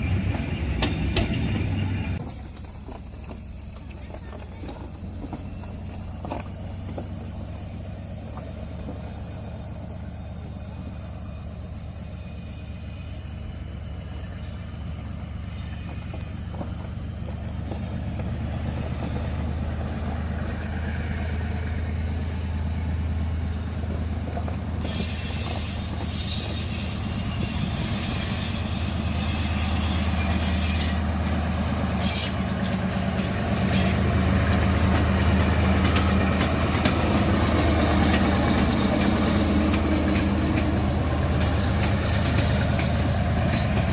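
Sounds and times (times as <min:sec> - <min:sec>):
diesel locomotive engine running: 0:00.0 - 0:43.9
wheels rattling on rails: 0:00.0 - 0:43.9
high wheel squeal: 0:24.8 - 0:31.1, 0:31.9 - 0:34.5.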